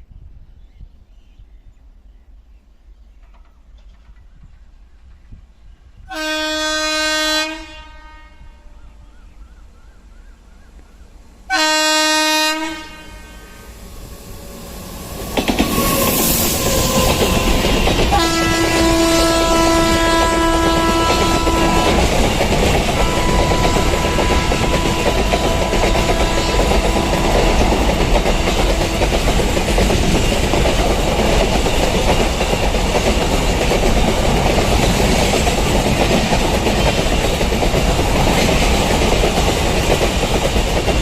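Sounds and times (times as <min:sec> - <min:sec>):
train passing with rumble: 0:02.8 - 0:41.0
train wheel clatter: 0:03.1 - 0:05.3, 0:14.0 - 0:41.0
train horn blasts: 0:06.1 - 0:09.0, 0:11.5 - 0:13.9, 0:15.6 - 0:29.2.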